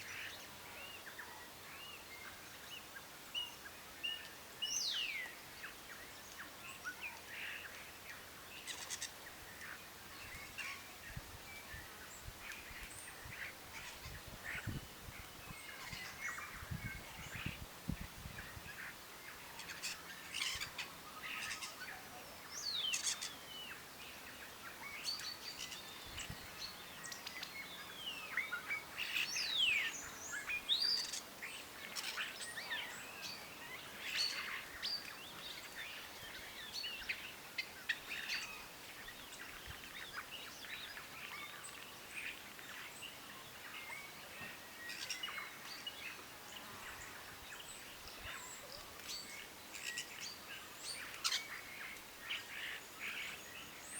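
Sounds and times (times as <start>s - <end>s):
birds chirping and calling: 4.2s - 10.9s, 19.6s - 22.0s, 22.6s - 53.9s.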